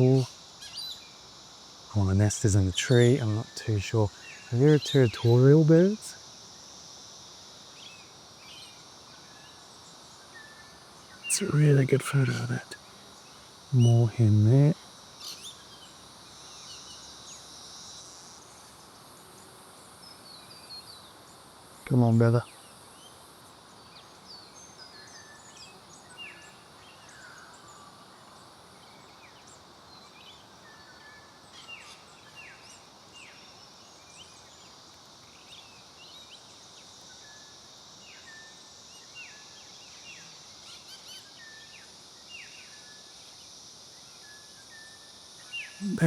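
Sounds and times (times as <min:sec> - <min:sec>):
high insect drone: 0:00.0 - 0:46.0
outdoor hiss: 0:00.0 - 0:46.0
small birds chirping: 0:02.0 - 0:06.1, 0:07.8 - 0:17.2, 0:45.5 - 0:46.0.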